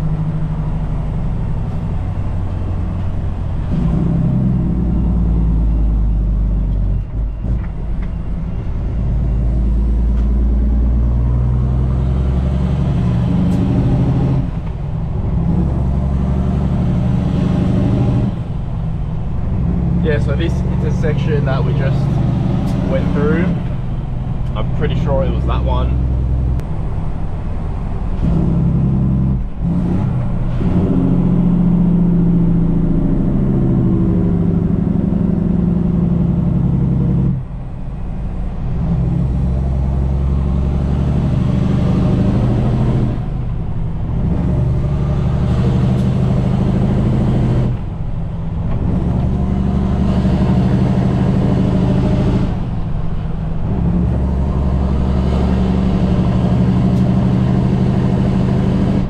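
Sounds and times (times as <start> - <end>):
truck diesel engine pulling: 0.0 - 59.0.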